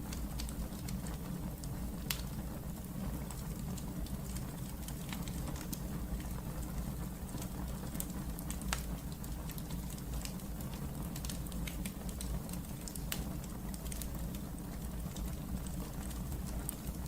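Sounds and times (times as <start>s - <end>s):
fire crackling and popping: 0.0s - 17.0s
fire flames rumbling: 0.0s - 17.0s.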